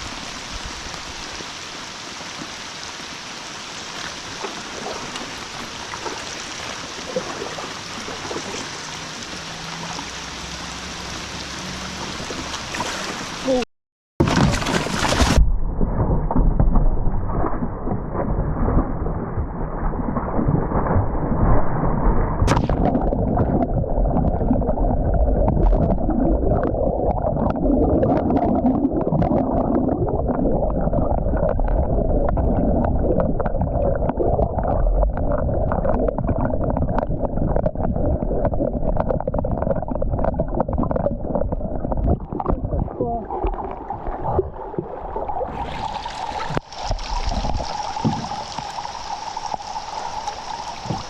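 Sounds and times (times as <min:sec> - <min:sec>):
river water rushing and gurgling: 0:00.0 - 0:13.6, 0:41.3 - 0:51.0.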